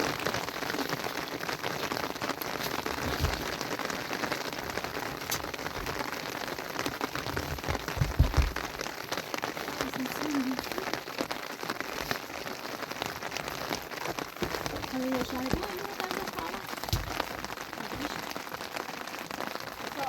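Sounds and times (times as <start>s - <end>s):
rain pattering: 0.0s - 20.0s
low thumps: 7.3s - 8.9s.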